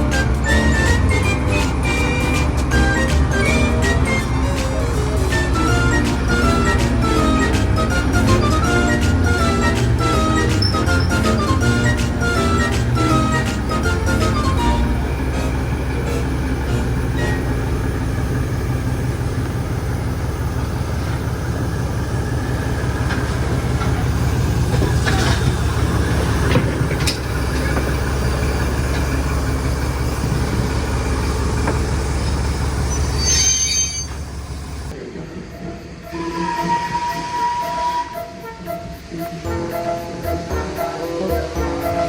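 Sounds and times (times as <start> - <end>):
train rumbling on rails: 0.0 - 42.0
brief high squeal: 32.8 - 34.3.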